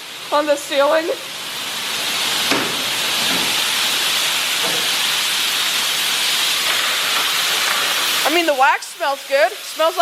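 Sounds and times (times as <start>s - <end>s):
car wash spray hissing: 0.3s - 7.4s.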